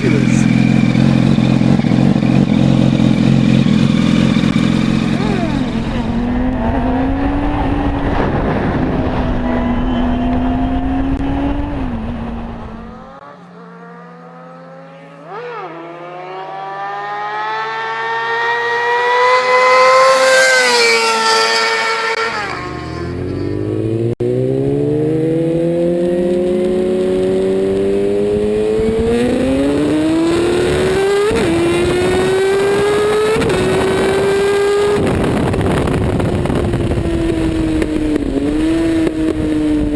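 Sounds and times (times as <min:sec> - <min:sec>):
sportbike accelerating hard: 0:00.0 - 0:39.9
sportbike passing by: 0:00.0 - 0:39.9.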